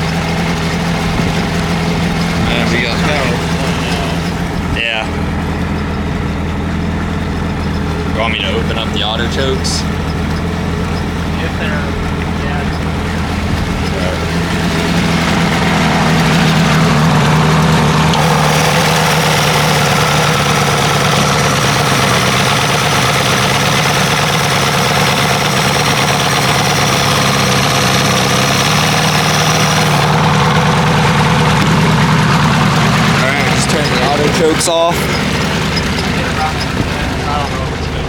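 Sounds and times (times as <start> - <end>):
outboard motor running: 0.0 - 38.0.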